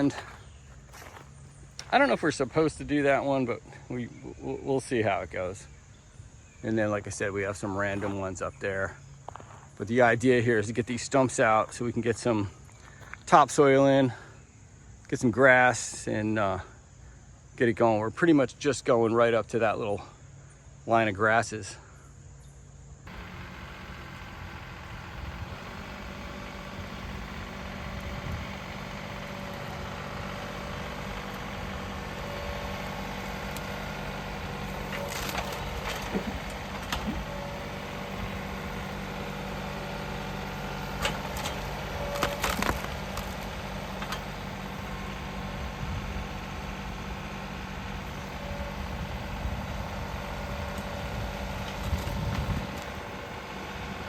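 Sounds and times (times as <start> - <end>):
tractor engine running: 0.0 - 5.8, 23.1 - 54.0
stump grinder chewing wood: 23.1 - 54.0
splintering wood cracks: 34.9 - 37.2, 41.0 - 43.5.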